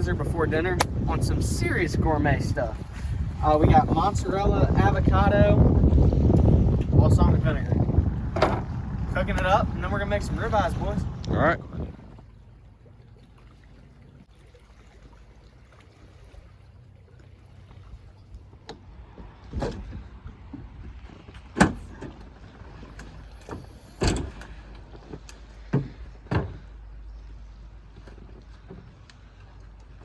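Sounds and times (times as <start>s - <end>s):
steady low rumble: 0.0s - 12.8s
sharp knocks and clunks: 8.3s - 9.5s, 18.7s - 26.8s.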